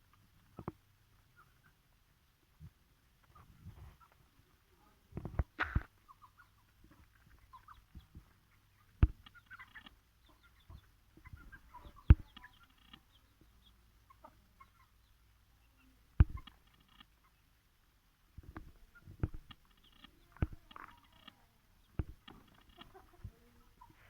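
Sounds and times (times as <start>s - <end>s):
chickens clucking: 0.0s - 24.0s
sharp thumps: 16.2s - 17.0s, 22.0s - 22.8s.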